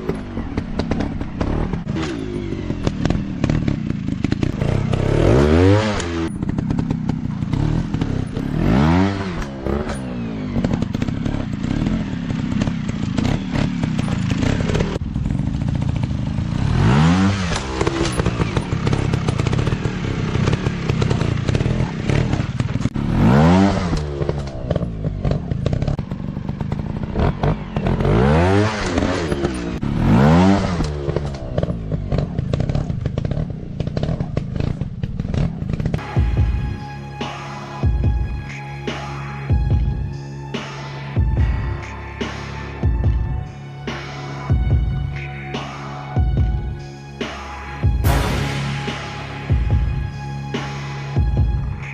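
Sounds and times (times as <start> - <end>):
dirt bike engines revving: 0.0 - 36.2.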